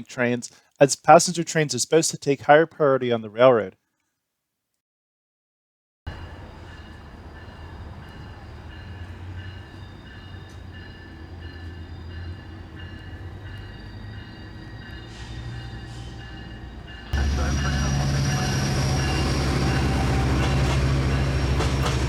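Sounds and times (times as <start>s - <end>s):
locomotive rumble: 6.1s - 22.0s
high whining tones: 6.2s - 21.8s.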